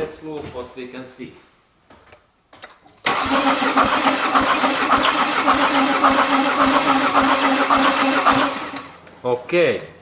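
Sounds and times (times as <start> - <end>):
starter motor cranking diesel engine: 3.1 - 9.0.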